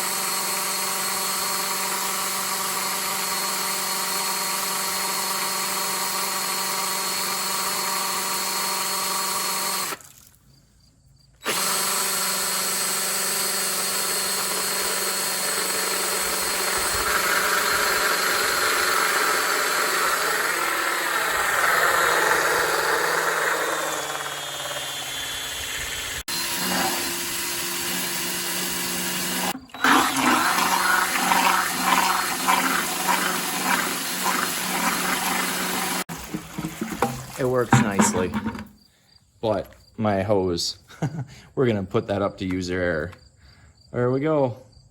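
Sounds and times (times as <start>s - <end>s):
cordless drill motor whine: 0.0s - 10.0s, 11.4s - 36.1s.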